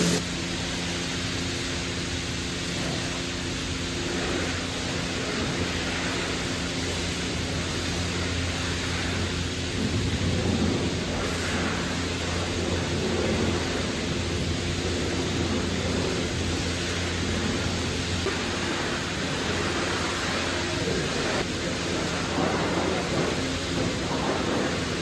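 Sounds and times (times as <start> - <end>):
low pump hum: 0.0 - 25.0
pressure washer spraying water: 0.0 - 25.0.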